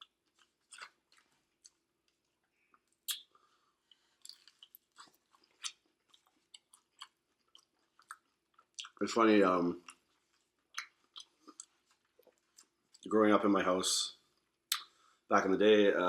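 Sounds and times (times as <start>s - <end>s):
person chewing food: 0.0s - 9.0s, 9.8s - 13.0s.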